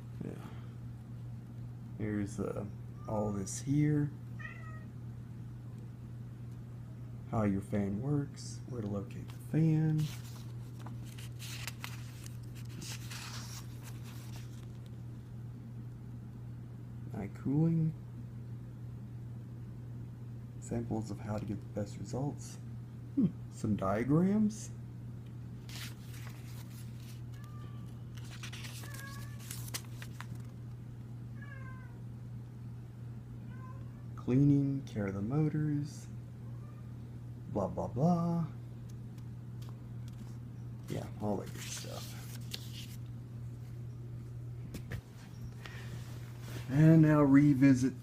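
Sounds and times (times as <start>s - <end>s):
steady low hum: 0.0s - 48.0s
cat meowing: 4.4s - 4.9s, 31.4s - 32.0s, 33.5s - 34.0s
paper pages rustling: 9.3s - 15.0s, 25.6s - 30.7s, 41.3s - 43.1s.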